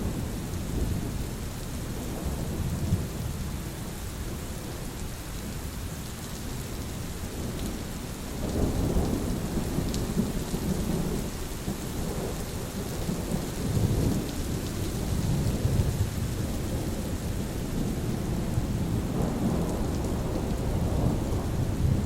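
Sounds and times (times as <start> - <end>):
steady rain: 0.0 - 22.0
rolling thunder: 12.0 - 22.0.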